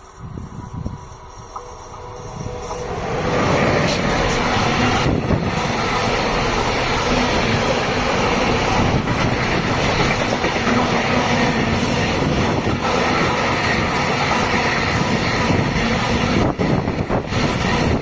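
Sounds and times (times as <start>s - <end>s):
train wheels rolling on rails: 0.0s - 18.0s.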